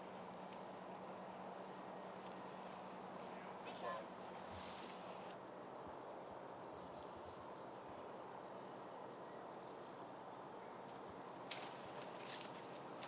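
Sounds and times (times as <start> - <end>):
low background noise: 0.0 - 13.0
high insect trill: 4.1 - 12.6.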